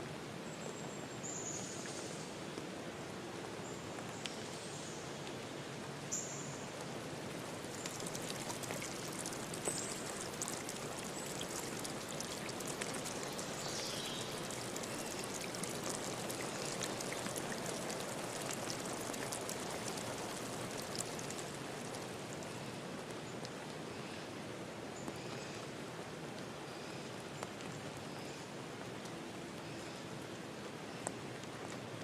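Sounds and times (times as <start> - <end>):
stream rushing over rocks: 5.7 - 23.8.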